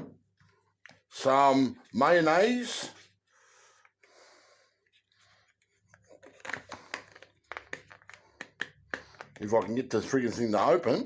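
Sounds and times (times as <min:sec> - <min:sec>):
cap clicking and scraping: 0:05.9 - 0:09.8.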